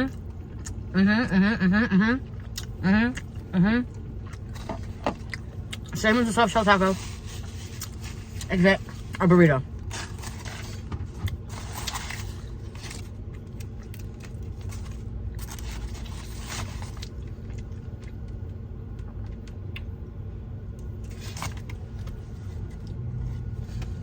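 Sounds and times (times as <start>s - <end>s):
steady low hum: 0.0s - 24.0s
chewing: 0.1s - 0.9s, 2.2s - 6.0s, 9.8s - 18.4s.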